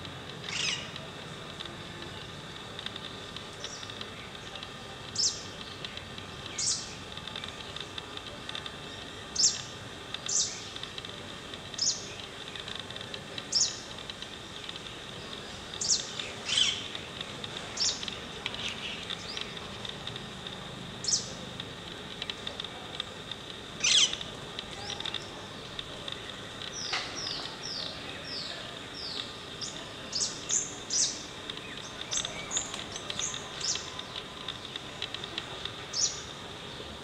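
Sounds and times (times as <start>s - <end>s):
small bird high calls: 0.4s - 1.0s, 6.5s - 7.0s, 9.0s - 9.7s, 15.4s - 16.9s, 23.8s - 24.2s.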